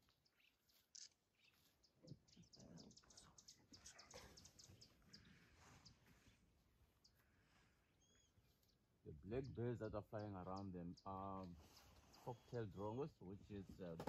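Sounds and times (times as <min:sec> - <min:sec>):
soft low rustles: 0:00.0 - 0:08.9
faint high bird chirps: 0:00.0 - 0:13.0.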